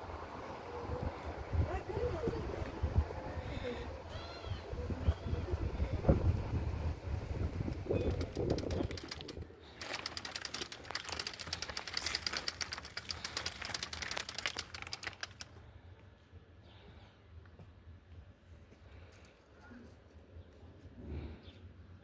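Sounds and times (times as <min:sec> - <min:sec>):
low rumble of wind: 0:00.0 - 0:16.6
rapid clattering clicks: 0:07.7 - 0:15.6.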